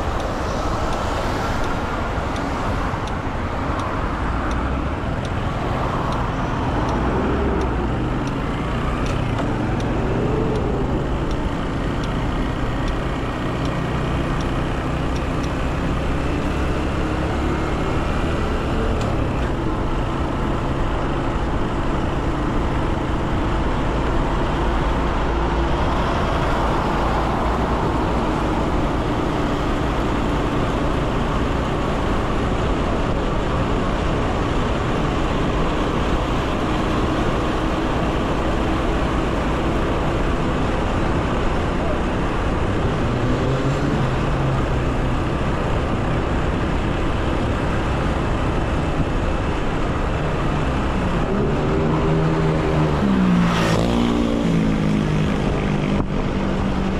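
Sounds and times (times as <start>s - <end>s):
road and wind noise: 0.0s - 56.9s.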